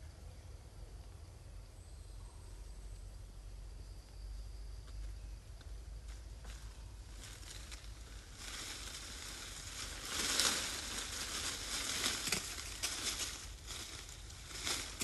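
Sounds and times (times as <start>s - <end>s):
dry rustling and crackling: 6.5s - 15.0s.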